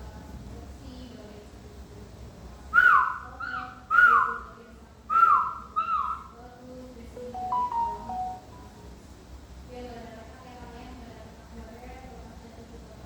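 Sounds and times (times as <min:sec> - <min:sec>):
soft steady tones: 0:07.2 - 0:09.0
downward sliding whistle notes: 0:07.3 - 0:08.6.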